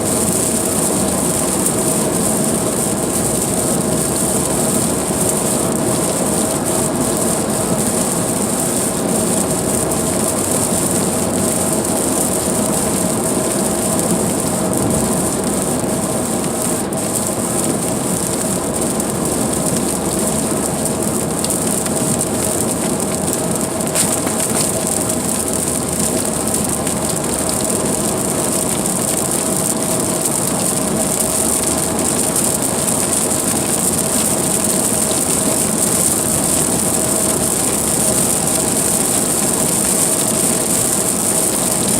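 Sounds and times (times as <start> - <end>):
car road noise: 0.0 - 41.9
rain on car: 0.0 - 41.9
tyre hiss on wet road: 0.0 - 41.9.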